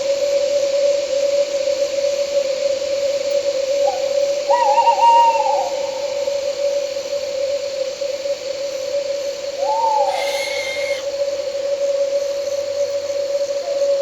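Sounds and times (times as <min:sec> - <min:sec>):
night insects droning: 0:00.0 - 0:14.0
wind hiss: 0:09.5 - 0:14.0
owl hooting: 0:09.6 - 0:11.5.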